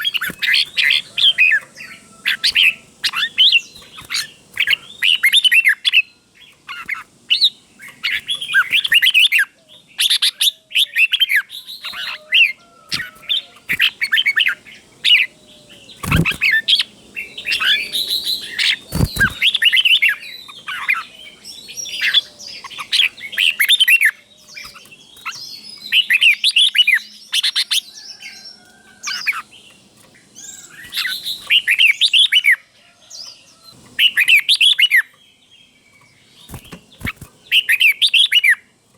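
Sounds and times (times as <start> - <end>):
bird singing bright phrases: 0.0 - 38.9
dull thumps: 18.9 - 19.5.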